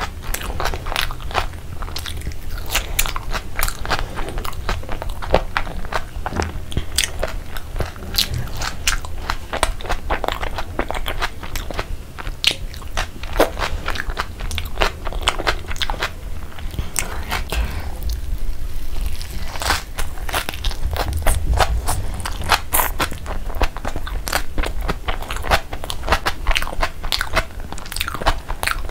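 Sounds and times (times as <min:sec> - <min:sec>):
crunchy chewing: 0:18.8 - 0:28.9.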